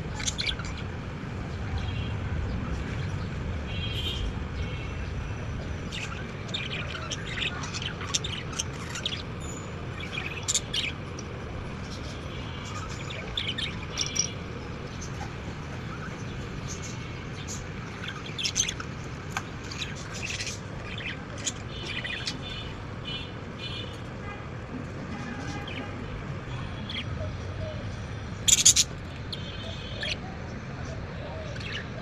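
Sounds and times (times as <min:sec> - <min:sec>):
budgerigars chirping and chattering: 0:00.0 - 0:00.9, 0:05.8 - 0:23.9, 0:26.8 - 0:27.3, 0:28.4 - 0:30.3, 0:30.9 - 0:32.0.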